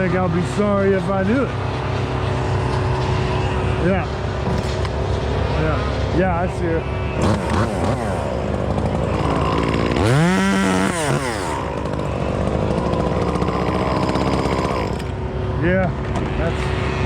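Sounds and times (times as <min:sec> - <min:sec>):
chainsaw engine revving: 0:07.1 - 0:17.0.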